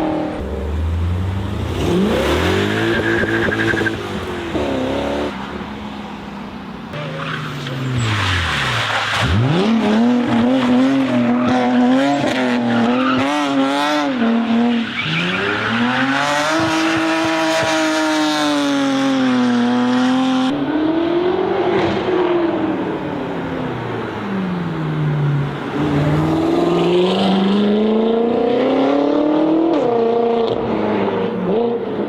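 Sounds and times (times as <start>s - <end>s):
car engine revving: 0.0s - 5.6s, 6.9s - 32.0s.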